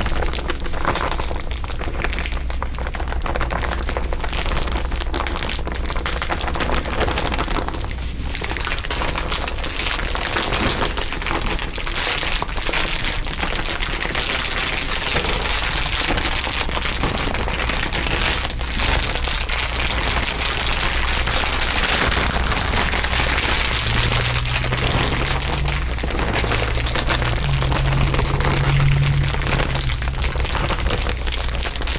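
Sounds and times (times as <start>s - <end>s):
dense crinkling crackle: 0.0s - 31.9s
steady low drone: 21.2s - 31.9s
low steady tones: 22.1s - 31.9s.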